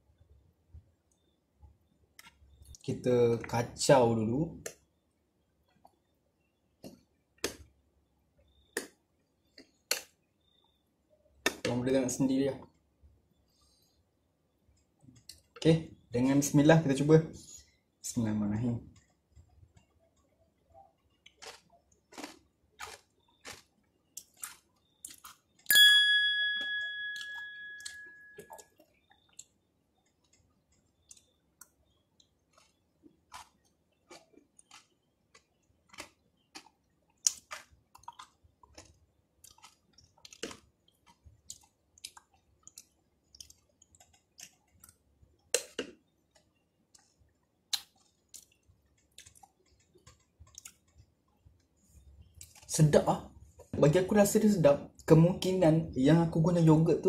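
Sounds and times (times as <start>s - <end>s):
chewing soft crunchy cereal: 12.6s - 15.7s, 17.4s - 25.7s, 28.4s - 53.8s
ringing ding: 25.7s - 28.6s.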